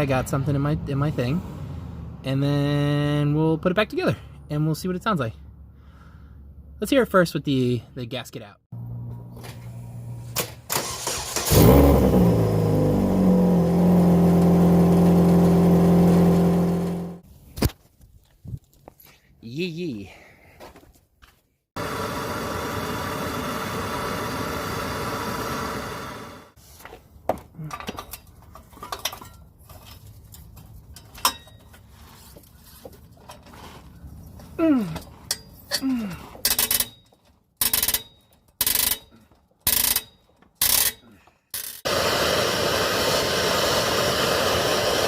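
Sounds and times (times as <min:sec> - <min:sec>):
car engine starting and idling: 0:09.9 - 0:17.2
metal tools clinking: 0:27.7 - 0:32.0, 0:35.0 - 0:41.8.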